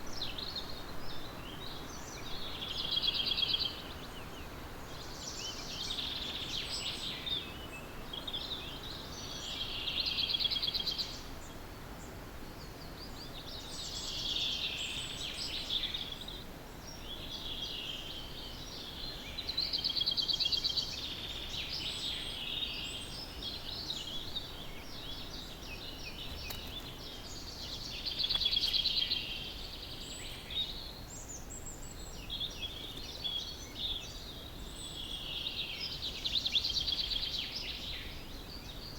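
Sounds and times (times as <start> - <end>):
low background hiss: 0.0 - 38.9
birds chirping: 12.6 - 38.9
bird trilled song: 18.8 - 38.9.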